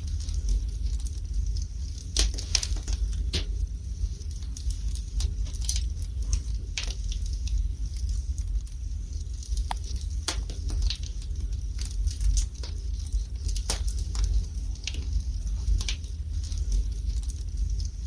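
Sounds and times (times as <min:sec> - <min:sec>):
low rumble of flames: 0:00.0 - 0:18.0
wood fire crackling and popping: 0:00.0 - 0:18.0.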